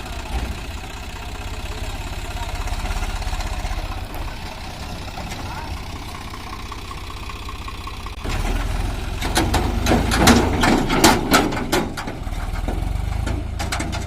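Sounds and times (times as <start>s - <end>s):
tractor diesel engine rumbling: 0.0s - 14.0s
sharp clatters and knocks: 8.3s - 14.0s.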